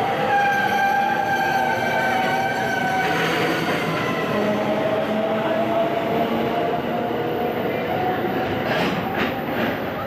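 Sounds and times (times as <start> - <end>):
freight train wheels rumbling: 8.2 - 10.0.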